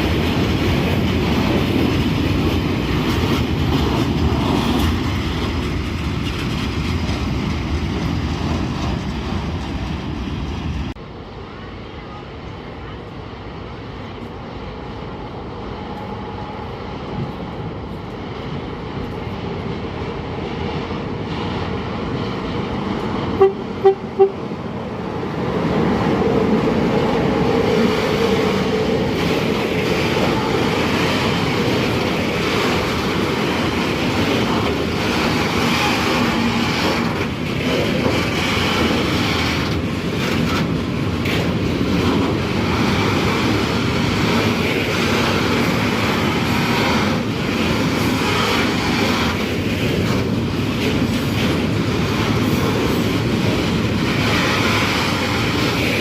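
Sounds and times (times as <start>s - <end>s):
train running noise: 0.0s - 56.0s
train horn toots: 23.4s - 24.4s.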